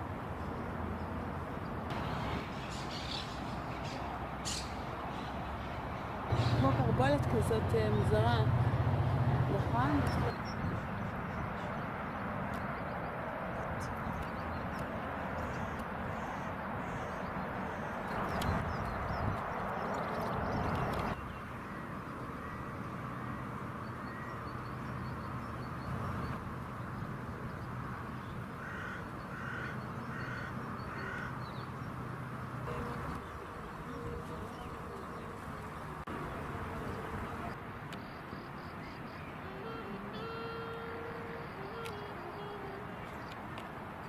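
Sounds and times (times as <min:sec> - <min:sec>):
crow cawing: 0:28.6 - 0:31.3.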